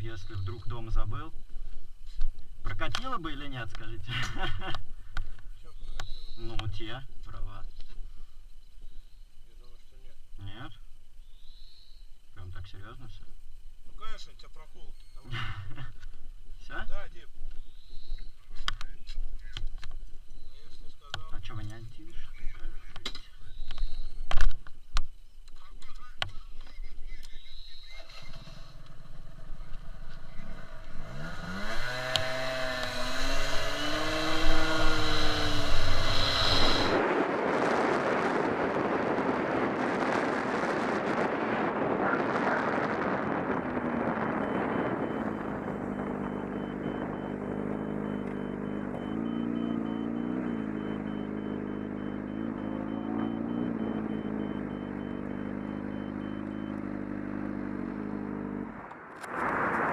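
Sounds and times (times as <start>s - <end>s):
motorcycle engine revving: 27.9s - 59.9s
wind noise rushing: 33.9s - 46.2s, 58.8s - 59.9s.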